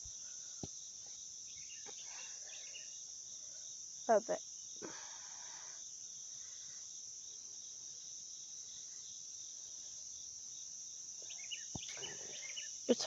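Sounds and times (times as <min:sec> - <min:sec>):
faint chirps: 0:00.0 - 0:06.9, 0:11.2 - 0:13.0
shrill insect chorus: 0:00.0 - 0:13.0.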